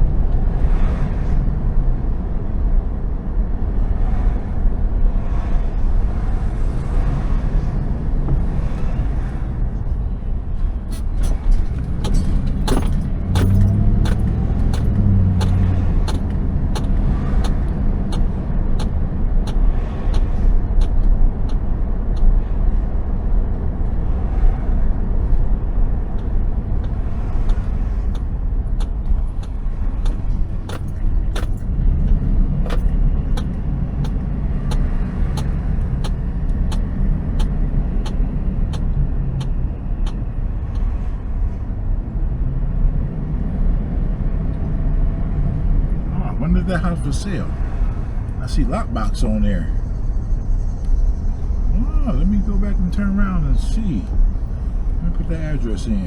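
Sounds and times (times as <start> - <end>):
road and engine rumble in car: 0.0 - 56.0
clicks and rattles: 26.8 - 31.6.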